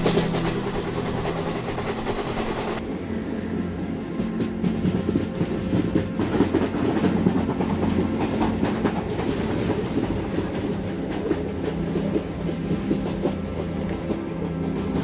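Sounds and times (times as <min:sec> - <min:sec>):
train wheels clicking on rails: 0:00.0 - 0:02.8, 0:03.6 - 0:15.0
steady low drone: 0:00.0 - 0:07.8.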